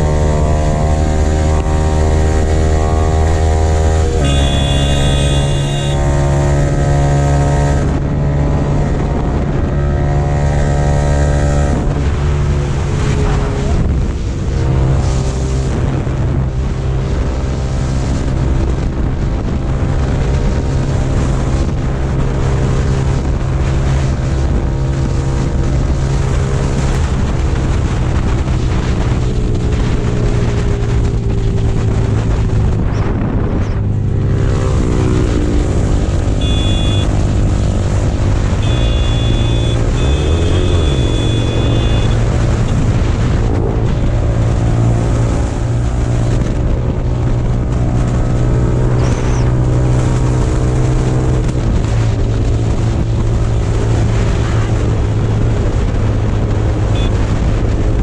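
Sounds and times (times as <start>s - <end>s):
motorcycle engine running: 0.0s - 14.1s, 26.8s - 45.8s, 50.3s - 57.9s
wind rushing over microphone: 0.0s - 58.0s
horn beeping: 3.2s - 6.6s, 36.2s - 42.8s, 56.9s - 57.3s.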